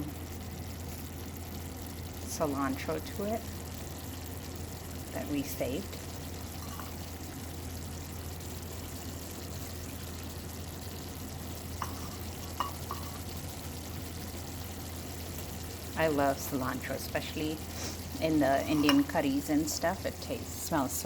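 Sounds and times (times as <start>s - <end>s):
curry sizzling in a pan: 0.0s - 21.0s
steady low hum: 0.0s - 21.0s
utensil taps: 11.8s - 13.2s, 18.7s - 19.2s.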